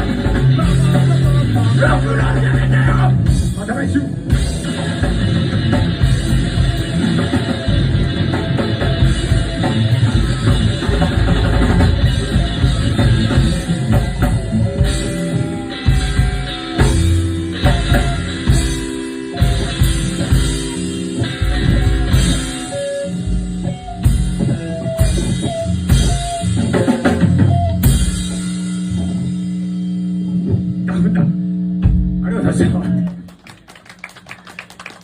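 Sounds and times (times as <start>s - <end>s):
drums hitting hard: 0.0s - 22.8s, 31.8s - 32.8s
live rock band playing: 0.0s - 35.0s.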